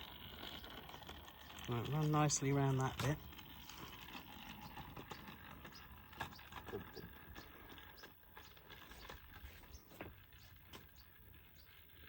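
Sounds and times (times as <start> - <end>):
toy locomotive clicking on track: 0.0 - 9.2.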